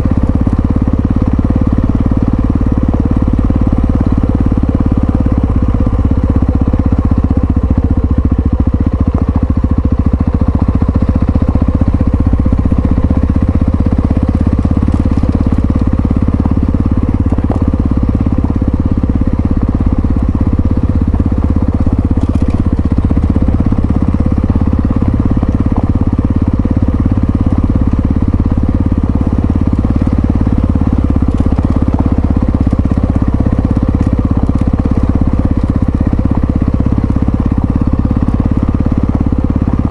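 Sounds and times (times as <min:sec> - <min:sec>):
single-cylinder engine running: 0:00.0 - 0:39.9.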